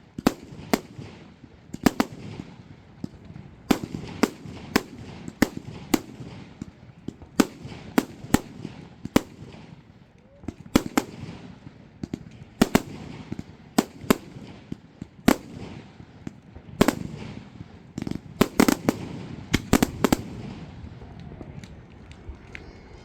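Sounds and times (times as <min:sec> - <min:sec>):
fireworks bursting in sharp bangs: 0:00.1 - 0:21.0
low rumble: 0:20.2 - 0:23.0.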